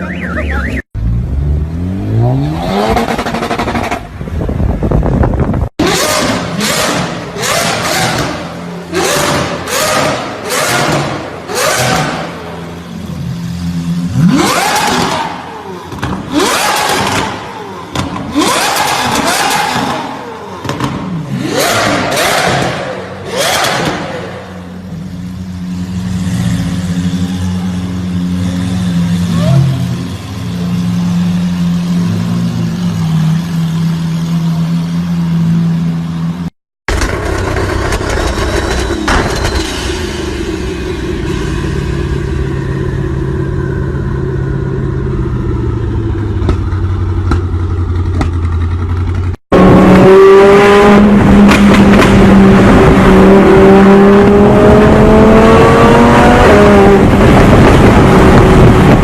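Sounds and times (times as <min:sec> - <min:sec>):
car engine revving up: 0:13.4 - 0:24.9, 0:49.5 - 0:59.0.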